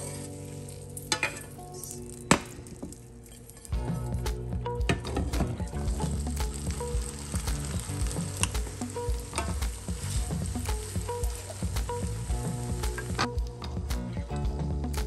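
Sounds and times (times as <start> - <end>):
omelette sizzling in frying pan: 5.7 - 13.3.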